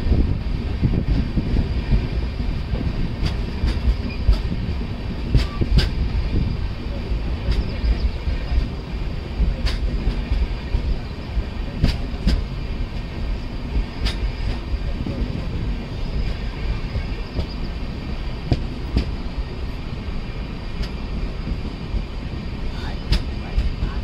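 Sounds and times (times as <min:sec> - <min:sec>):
rushing air: 0:00.0 - 0:24.0
train wheels rumbling on track: 0:00.0 - 0:24.0
sharp rail clicks: 0:02.5 - 0:06.3, 0:07.3 - 0:08.8, 0:09.4 - 0:13.1, 0:13.7 - 0:15.4, 0:18.4 - 0:19.2, 0:20.7 - 0:21.0, 0:23.0 - 0:23.8.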